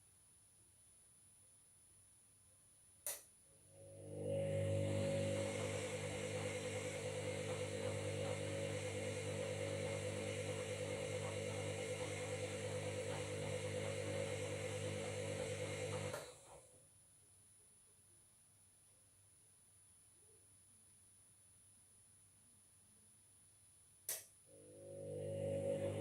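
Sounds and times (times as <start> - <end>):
washing machine motor whirring: 3.8 - 16.5, 24.5 - 26.0.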